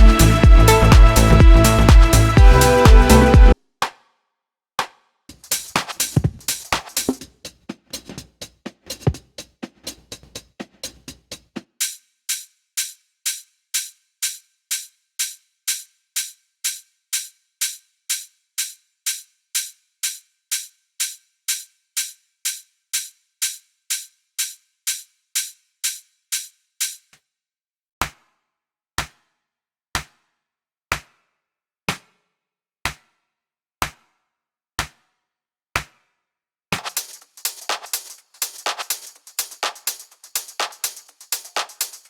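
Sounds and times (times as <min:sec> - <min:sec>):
drum machine beat with bass: 0:00.0 - 0:03.6, 0:05.3 - 0:11.9, 0:36.8 - 0:42.0
hi-hat ticking: 0:00.0 - 0:03.6, 0:05.3 - 0:27.1, 0:36.8 - 0:42.0
low drum thump: 0:00.0 - 0:03.6, 0:06.1 - 0:06.5.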